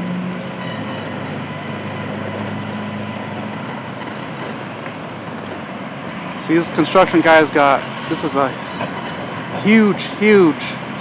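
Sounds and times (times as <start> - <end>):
engine droning: 0.0 - 11.0
outdoor noise: 0.0 - 11.0.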